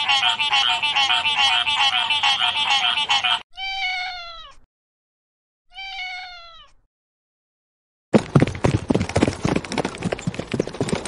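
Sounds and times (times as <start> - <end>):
cat meowing: 3.5 - 4.7, 5.7 - 6.8.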